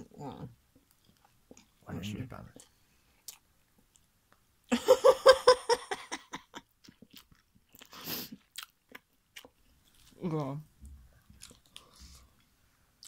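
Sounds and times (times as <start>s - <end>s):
person chewing crunchy food: 2.6s - 4.1s, 6.8s - 10.2s, 11.2s - 12.5s.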